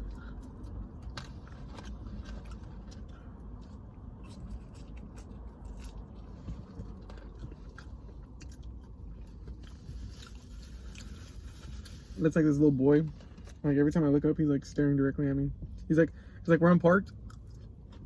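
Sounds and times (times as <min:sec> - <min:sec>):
person chewing a sandwich: 0:00.0 - 0:12.2, 0:17.0 - 0:18.0.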